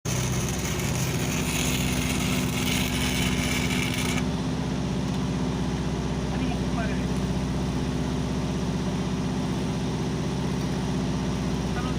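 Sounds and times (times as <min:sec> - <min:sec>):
engine running: 0:00.0 - 0:11.9
welding arc hissing and crackling: 0:00.1 - 0:04.2.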